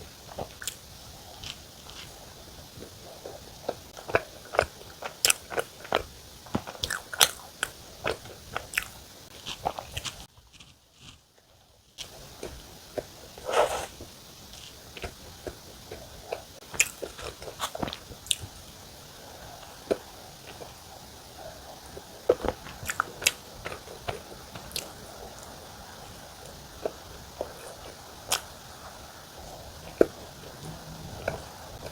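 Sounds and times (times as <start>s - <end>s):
person biting and chewing: 3.2s - 11.2s, 13.4s - 18.6s, 19.3s - 28.7s
mouth clicks and smacks: 12.0s - 31.9s.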